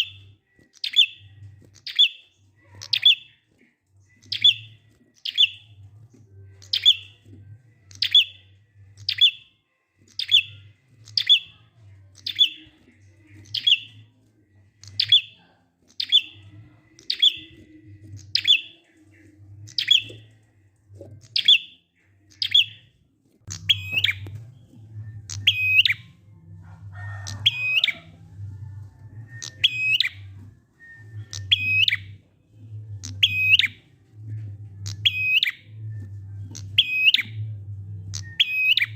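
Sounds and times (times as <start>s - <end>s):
low hum: 22.1s - 38.9s.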